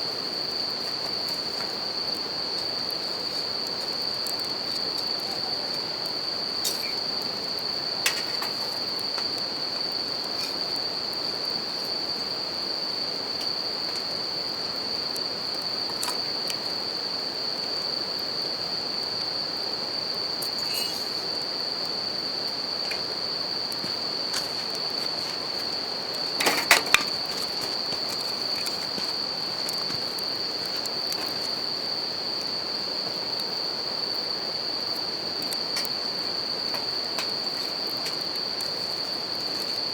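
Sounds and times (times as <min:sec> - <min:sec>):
crickets singing high note: 0:00.0 - 0:39.9
campfire crackling and popping: 0:00.2 - 0:39.8.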